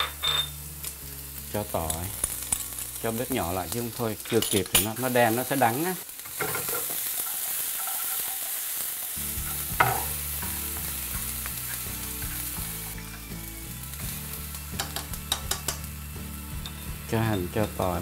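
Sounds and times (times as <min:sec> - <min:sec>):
onion sizzling in hot oil: 0:00.0 - 0:18.0
chopsticks knocking on a pan: 0:09.8 - 0:10.1
chopsticks clicking against a pan: 0:14.8 - 0:15.9.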